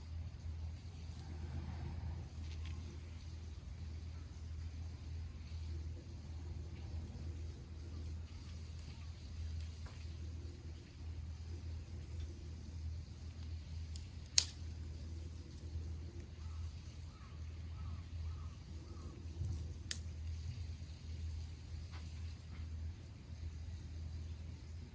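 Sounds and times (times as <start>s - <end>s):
steady low hum: 0.0s - 24.9s
burning wood popping: 11.6s - 16.8s, 19.2s - 22.8s.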